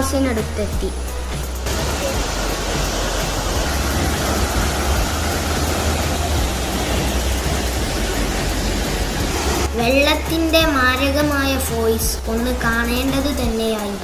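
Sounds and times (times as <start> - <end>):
waterfall rushing onto rocks: 1.3 - 9.7.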